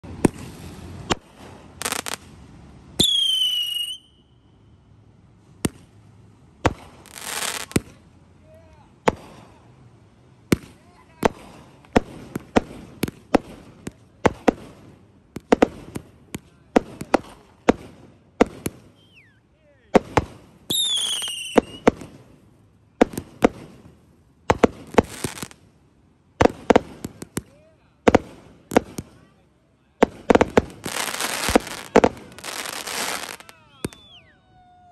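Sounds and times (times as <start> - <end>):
fireworks banging: 0.0 - 2.4, 6.6 - 8.0, 9.0 - 9.6, 10.5 - 19.2, 19.9 - 25.6, 26.3 - 29.3, 29.9 - 34.3
firework crackling: 0.0 - 4.2, 6.6 - 8.0, 10.5 - 19.3, 19.9 - 34.9
firework hiss: 0.1 - 4.0, 6.6 - 7.9, 23.0 - 25.6, 30.0 - 34.2
whistling firework: 3.0 - 4.7, 18.5 - 19.5, 20.1 - 22.2, 30.2 - 34.9.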